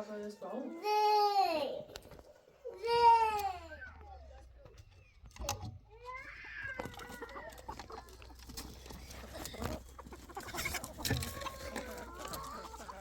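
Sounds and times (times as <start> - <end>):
chickens clucking: 3.9 - 13.0.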